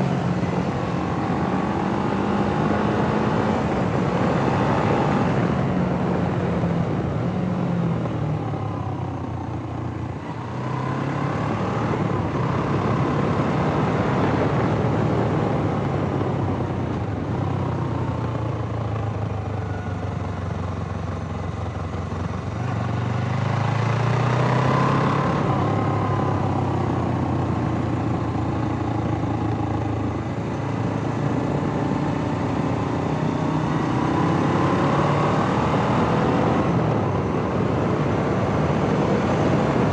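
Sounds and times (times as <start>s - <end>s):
motorcycle engine revving: 0.0s - 8.0s, 20.4s - 39.9s.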